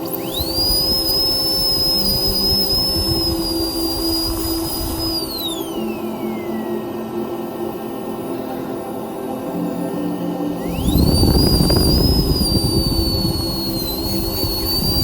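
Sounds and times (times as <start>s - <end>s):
rotary handpiece whining: 0.0s - 6.7s, 10.6s - 15.0s
background music: 0.0s - 15.0s.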